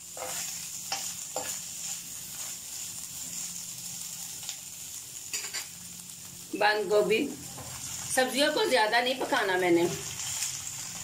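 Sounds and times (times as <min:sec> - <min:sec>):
metal spoon scraping a pan: 0:00.0 - 0:03.5, 0:05.3 - 0:05.7, 0:07.4 - 0:08.3
chicken sizzling in oil: 0:00.0 - 0:11.0.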